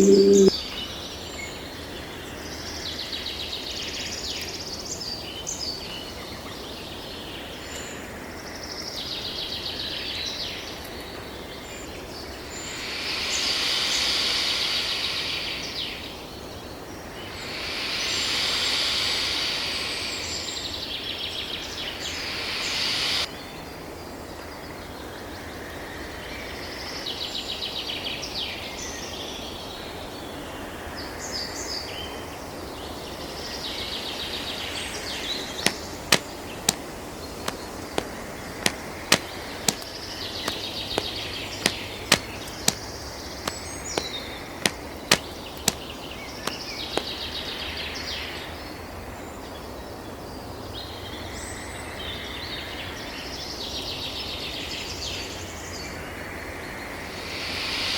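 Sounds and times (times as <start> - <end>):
birds chattering: 0.0 - 0.5, 35.6 - 42.9
sharp clicks: 37.5 - 39.9, 40.5 - 42.8, 43.5 - 45.8.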